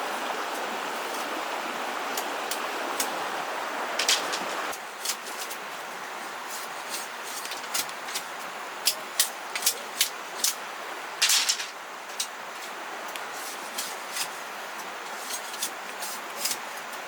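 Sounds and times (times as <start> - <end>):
steady hiss: 0.0 - 17.0
scratchy scraping noises: 4.0 - 5.8, 6.4 - 8.3, 13.3 - 16.9.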